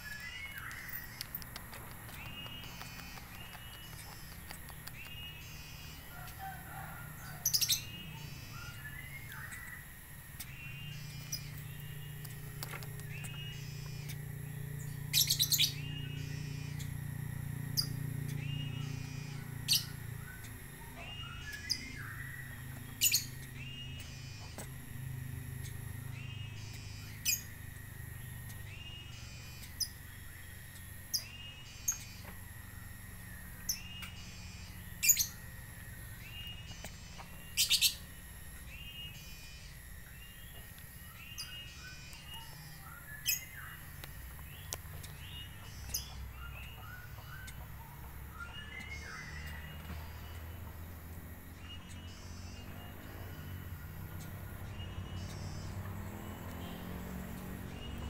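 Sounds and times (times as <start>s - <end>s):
fast bird twitter: 0.0s - 14.2s, 14.8s - 16.9s, 36.2s - 38.1s
low hum: 0.0s - 58.0s
sharp high bird chirps: 0.0s - 58.0s.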